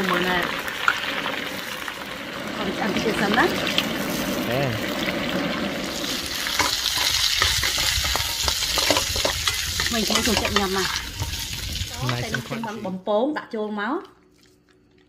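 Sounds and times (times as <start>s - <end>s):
chicken sizzling in oil: 0.0s - 12.8s
spatula scraping wok: 2.6s - 13.0s.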